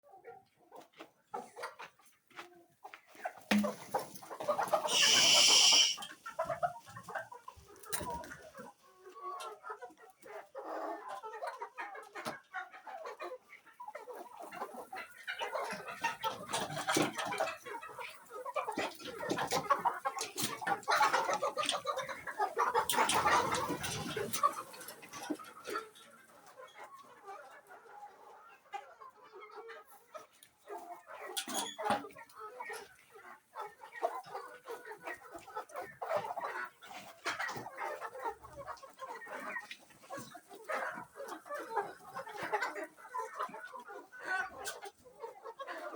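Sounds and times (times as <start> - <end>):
chickens clucking: 0.1 - 45.9
loud high chicken call: 4.8 - 6.1.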